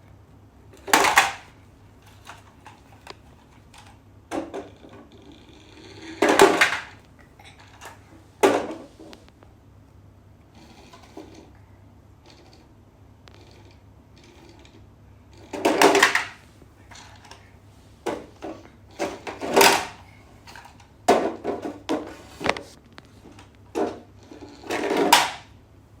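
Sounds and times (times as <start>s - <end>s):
toy truck knocking and clattering: 0.8s - 5.1s, 6.0s - 7.0s, 15.5s - 17.4s, 18.1s - 22.2s, 23.4s - 25.5s
toy truck rattling: 0.8s - 5.1s, 5.8s - 7.0s, 15.5s - 17.4s, 18.9s - 21.9s.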